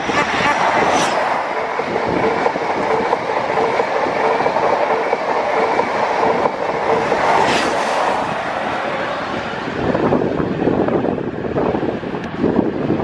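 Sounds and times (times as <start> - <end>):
train passing at speed: 0.0 - 13.0.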